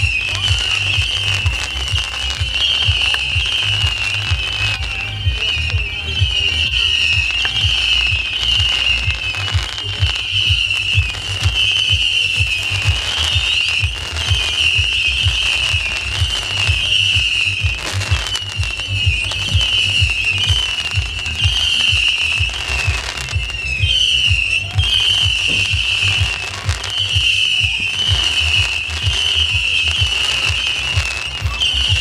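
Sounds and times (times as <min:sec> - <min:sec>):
low thumps of firework tubes: 0:00.0 - 0:32.0
sharp crackles: 0:00.0 - 0:32.0
whistling fireworks: 0:00.0 - 0:32.0.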